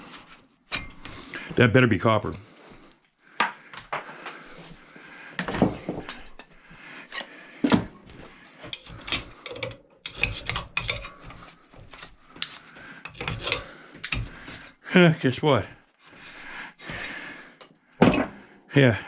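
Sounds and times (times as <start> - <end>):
sharp metal clanks: 3.4 - 4.2
hand tools clinking on metal: 3.4 - 4.5, 5.9 - 8.1.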